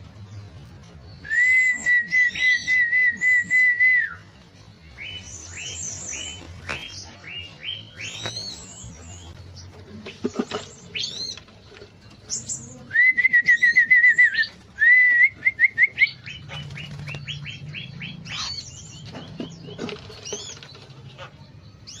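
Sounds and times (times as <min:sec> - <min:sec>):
birds chirping: 0:00.0 - 0:22.0
bird trills: 0:15.8 - 0:22.0.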